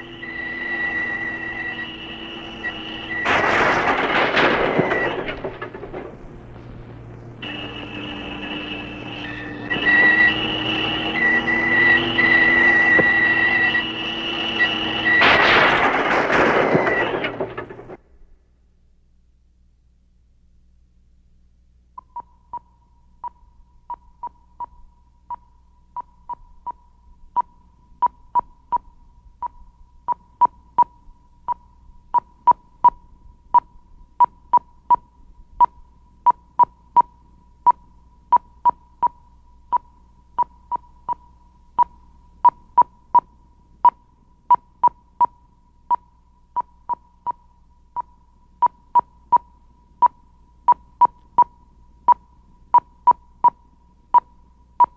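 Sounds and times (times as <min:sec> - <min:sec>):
short electronic beeps: 0:00.0 - 0:06.0, 0:06.9 - 0:17.9
faint steady tone: 0:00.0 - 0:18.0, 0:21.2 - 0:54.9.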